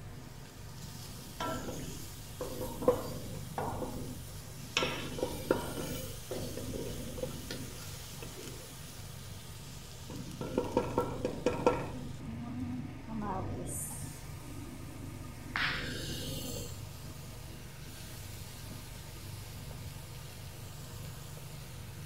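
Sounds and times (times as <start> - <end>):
onions frying in butter: 0.1 - 12.2, 15.6 - 22.0
utensil scraping a metal pot: 1.4 - 8.6.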